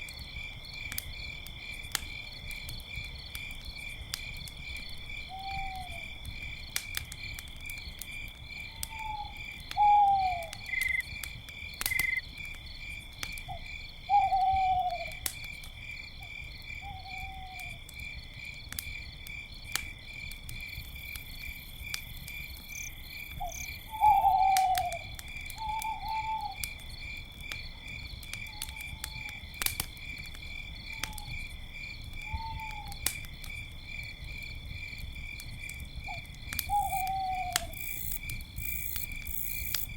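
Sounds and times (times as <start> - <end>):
campfire crackling and popping: 0.0 - 39.9
crickets chirping: 0.0 - 39.9
owl hooting: 8.9 - 10.8, 14.1 - 15.1, 23.4 - 25.0, 36.7 - 37.7.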